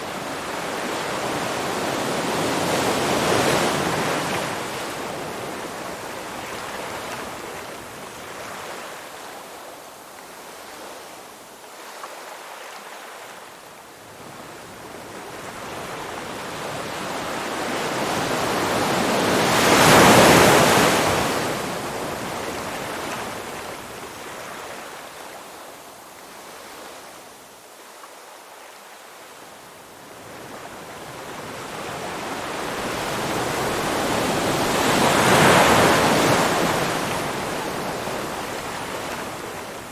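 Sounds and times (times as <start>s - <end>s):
ocean waves washing ashore: 0.0s - 27.3s, 29.0s - 39.9s.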